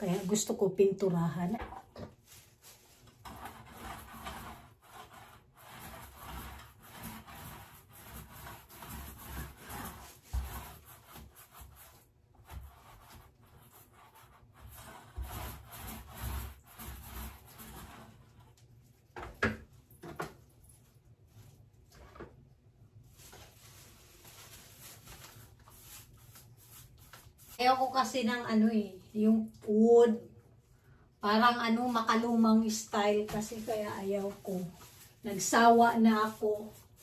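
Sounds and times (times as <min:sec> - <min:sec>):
paintbrush rubbing on wood: 0:00.0 - 0:00.6, 0:02.2 - 0:18.6, 0:23.2 - 0:28.1, 0:31.7 - 0:37.0.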